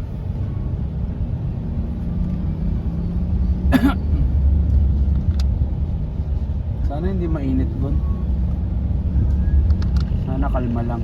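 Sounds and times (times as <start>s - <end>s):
car cabin road rumble: 0.0s - 11.0s
person coughing: 3.7s - 4.3s.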